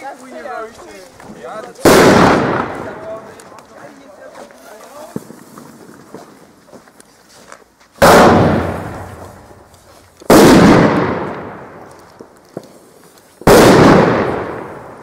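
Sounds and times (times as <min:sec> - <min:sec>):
firework bangs with echo: 0:01.8 - 0:03.3, 0:08.0 - 0:09.5, 0:10.3 - 0:11.9, 0:13.4 - 0:15.0.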